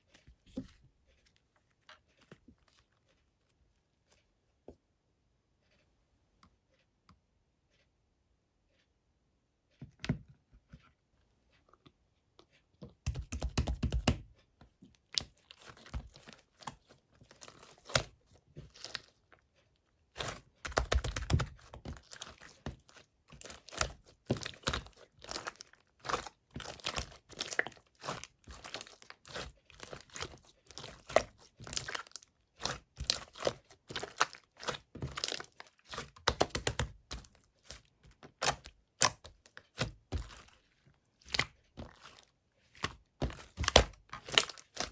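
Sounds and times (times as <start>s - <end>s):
slime kneaded sticky clicks: 20.2s - 40.5s.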